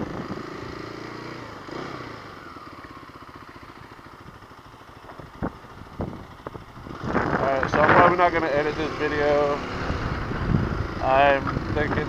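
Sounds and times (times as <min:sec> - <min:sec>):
motorcycle engine putter: 0:04.8 - 0:08.1.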